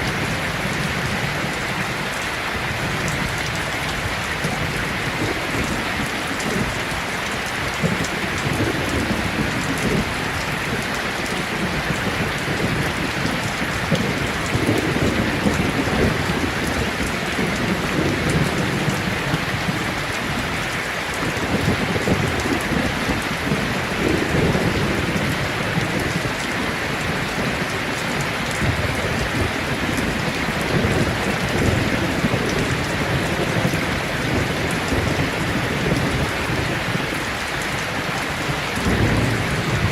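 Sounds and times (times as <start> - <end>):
heavy rain on a tin roof: 0.0 - 39.9
rolls of thunder: 38.8 - 39.9.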